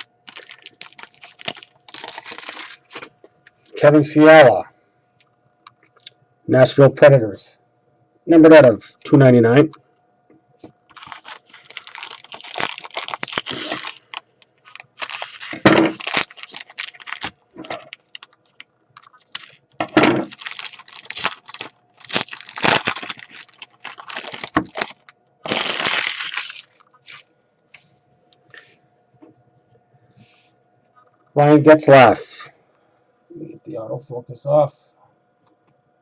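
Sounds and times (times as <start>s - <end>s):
foil wrapper crinkling: 0.0s - 3.2s, 10.9s - 27.2s
cards shuffling: 10.9s - 18.4s.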